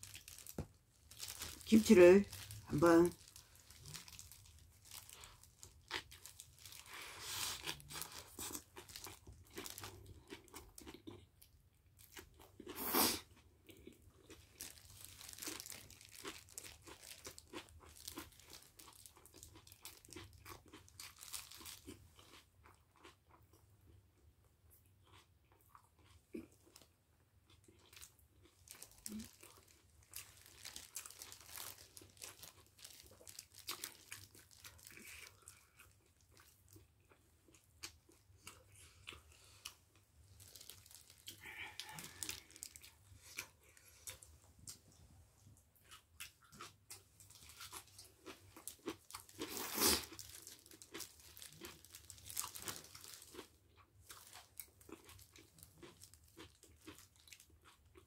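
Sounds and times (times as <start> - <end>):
plastic gloves crinkling: 0.0 - 10.1, 14.4 - 20.1, 20.9 - 22.0, 28.6 - 35.6, 40.2 - 44.8, 47.2 - 53.4
crunchy chewing: 2.3 - 23.6, 24.8 - 44.8, 45.8 - 58.0.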